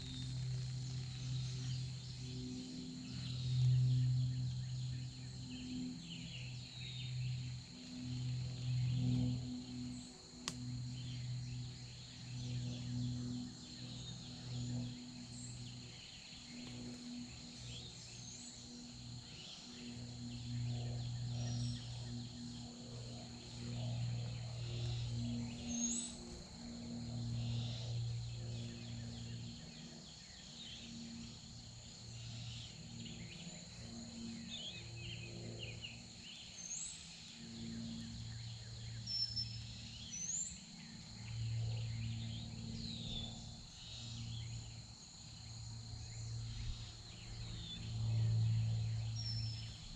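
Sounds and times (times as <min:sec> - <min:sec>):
low hum: 0:00.0 - 0:29.9
high insect drone: 0:00.0 - 0:49.9.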